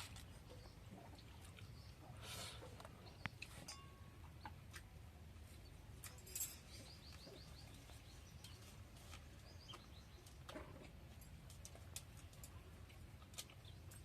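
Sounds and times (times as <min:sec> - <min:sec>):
bird chirping: 0:05.5 - 0:10.6.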